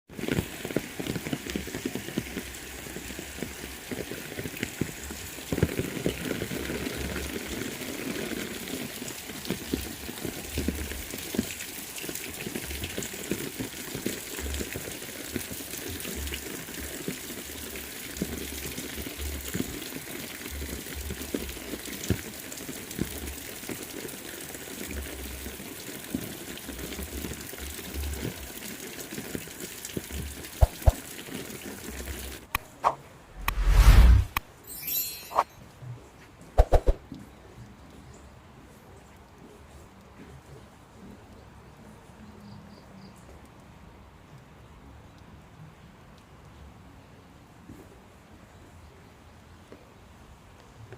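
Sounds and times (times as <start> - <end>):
heavy rain falling: 0.1 - 32.6
low rumbles: 32.8 - 34.4.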